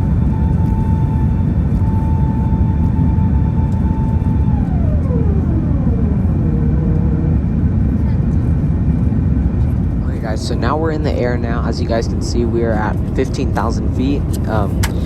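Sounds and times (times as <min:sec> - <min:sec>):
aircraft cabin engine rumble: 0:00.0 - 0:15.0
steady whine: 0:00.0 - 0:15.0.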